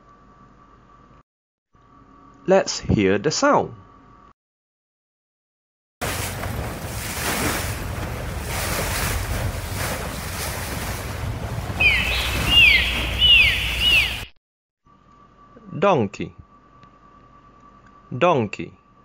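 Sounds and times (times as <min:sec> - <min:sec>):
sea: 0:06.0 - 0:14.3
wind on microphone: 0:06.4 - 0:14.2
dolphins whistling: 0:11.6 - 0:14.4.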